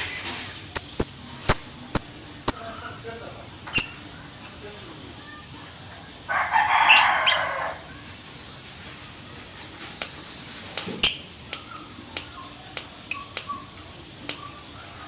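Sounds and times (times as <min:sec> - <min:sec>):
bird chirps: 0:00.4 - 0:02.8, 0:03.7 - 0:04.0, 0:11.0 - 0:13.8.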